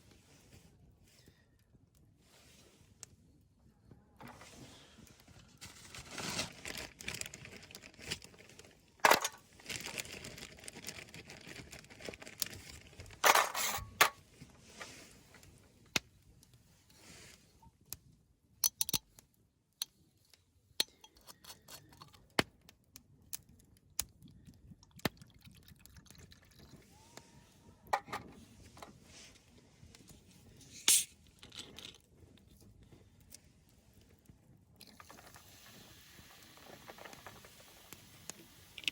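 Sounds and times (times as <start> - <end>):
rustling and crinkling: 4.2 - 17.6, 27.9 - 38.9
small clicks and clinks: 20.8 - 22.3.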